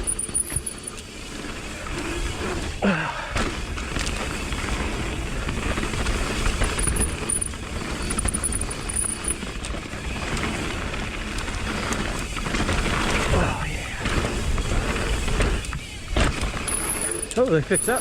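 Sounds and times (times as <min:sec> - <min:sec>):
bike rattling over bumps: 0:00.0 - 0:18.0
tyres rolling over dirt: 0:00.2 - 0:18.0.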